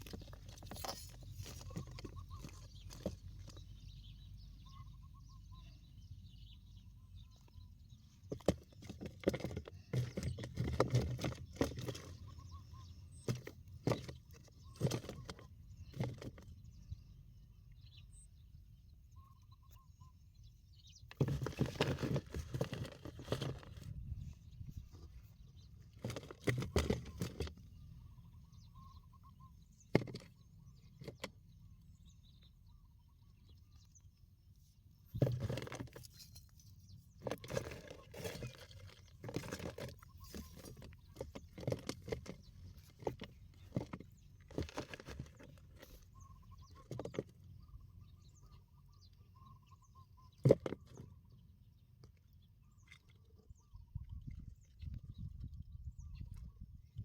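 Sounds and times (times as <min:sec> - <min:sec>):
rustling and knocking: 0:21.1 - 0:24.1, 0:35.1 - 0:46.0.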